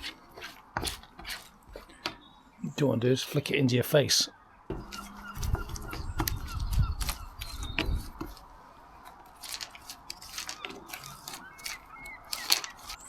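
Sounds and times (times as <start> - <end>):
leaves and twigs crackling and rustling: 4.9 - 13.0.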